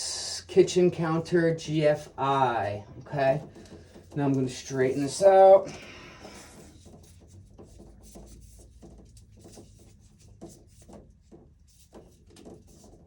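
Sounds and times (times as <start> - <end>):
cable rubbing and scraping: 0.6 - 13.0.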